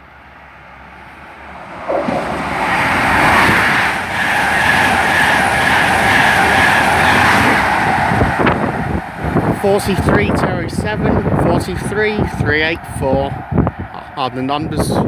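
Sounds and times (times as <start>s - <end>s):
steady high whine: 0.0s - 11.5s
train rushing by on rails: 0.0s - 15.0s.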